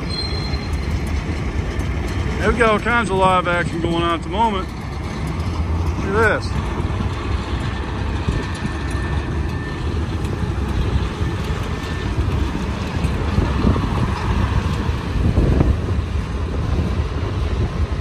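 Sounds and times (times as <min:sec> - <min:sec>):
high wheel squeal: 0:00.0 - 0:01.3, 0:07.3 - 0:12.5
freight train wheels rumbling: 0:00.0 - 0:18.0.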